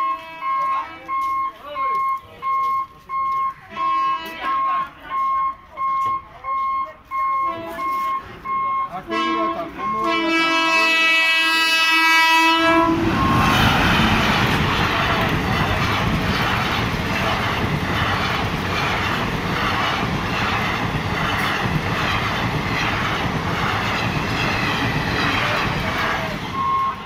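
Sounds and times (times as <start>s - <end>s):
train horn blast: 3.7s - 4.8s, 9.0s - 14.2s
train coaches rushing past: 7.1s - 27.0s
wheels clattering over rail joints: 12.8s - 27.0s.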